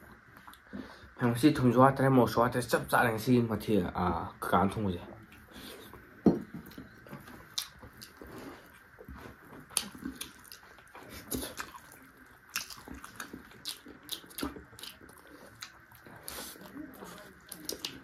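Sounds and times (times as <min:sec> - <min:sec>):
person chewing wetly: 0:06.6 - 0:18.0.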